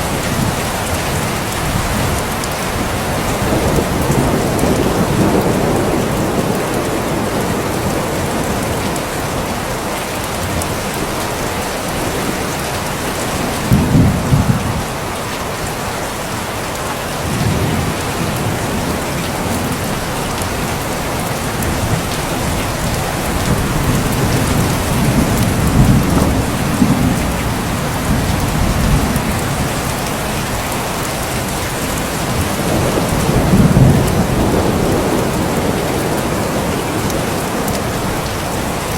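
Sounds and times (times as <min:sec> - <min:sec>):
thunder rumbling: 0:00.0 - 0:15.8, 0:17.1 - 0:38.9
steady rain falling: 0:00.0 - 0:38.9.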